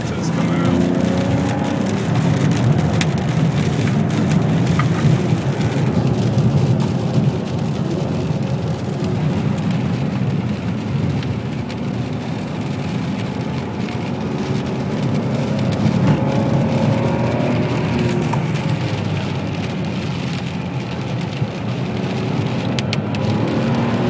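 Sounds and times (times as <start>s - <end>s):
car engine running: 0.0s - 24.0s
tyres hissing on wet road: 0.0s - 24.0s.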